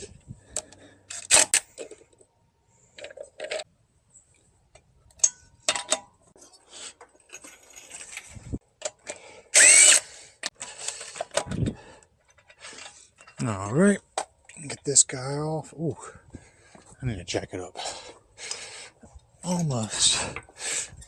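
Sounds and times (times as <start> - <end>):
metal clicks and clanks: 4.7 - 6.4, 10.4 - 14.8
impact wrench burst: 9.6 - 10.1.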